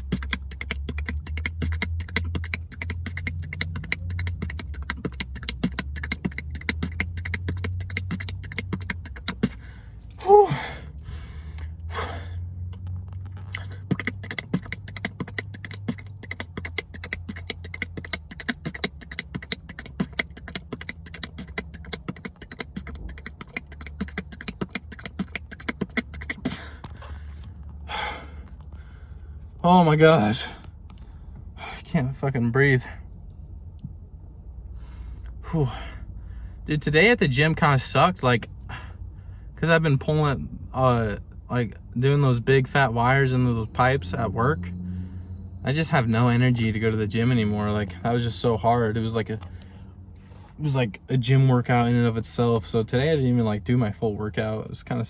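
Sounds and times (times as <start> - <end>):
person beatboxing: 0.0 - 10.7, 13.4 - 27.1
low hum: 0.0 - 51.2
loud pitched vocal sound: 10.2 - 10.8, 13.5 - 26.8.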